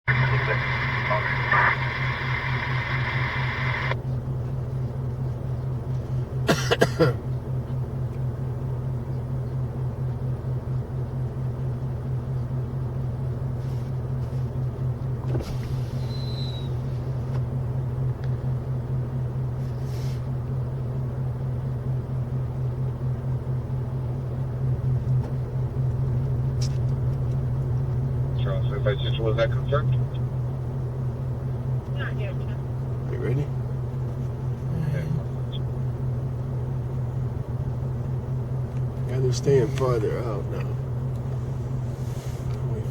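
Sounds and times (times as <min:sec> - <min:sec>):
car engine idling: 0:00.1 - 0:42.9.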